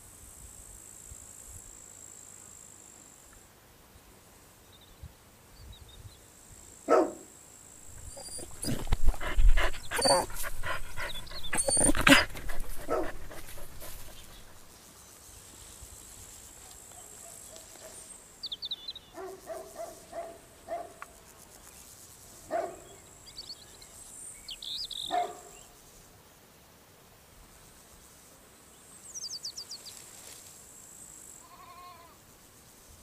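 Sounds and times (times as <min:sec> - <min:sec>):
insects trilling: 0:06.1 - 0:20.4, 0:28.8 - 0:33.0
dog barking: 0:06.9 - 0:07.3, 0:08.2 - 0:14.3, 0:16.6 - 0:18.0, 0:19.1 - 0:21.0, 0:22.5 - 0:22.9, 0:25.1 - 0:25.6
birds chirping: 0:07.9 - 0:14.6.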